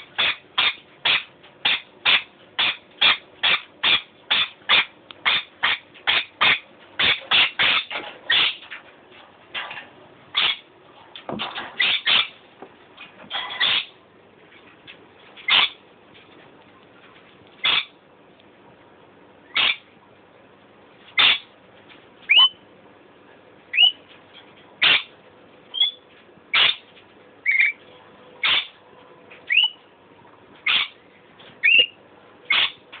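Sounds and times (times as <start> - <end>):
pet bird calling: 0.0 - 8.6, 10.3 - 10.7, 11.8 - 12.4, 13.4 - 14.0, 15.5 - 15.8, 17.6 - 18.0, 19.5 - 19.9, 21.2 - 21.5, 22.3 - 22.6, 23.7 - 24.0, 24.8 - 25.1, 25.7 - 26.8, 27.4 - 27.8, 28.4 - 28.8, 29.5 - 29.8, 30.6 - 31.0, 31.6 - 32.8
thin whistled bird notes: 23.7 - 24.0, 29.5 - 29.8.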